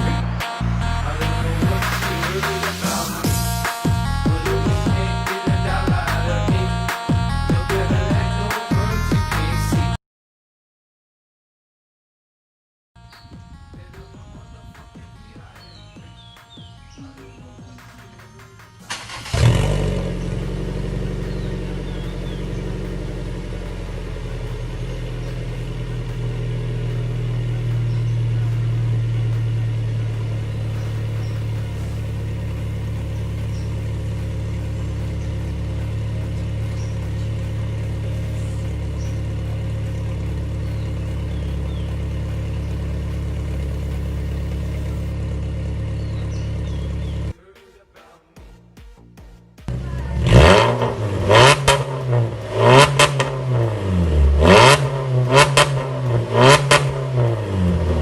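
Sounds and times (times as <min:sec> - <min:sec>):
car engine idling through exhaust: 0:00.0 - 0:06.7, 0:18.9 - 0:47.4, 0:49.7 - 0:58.0.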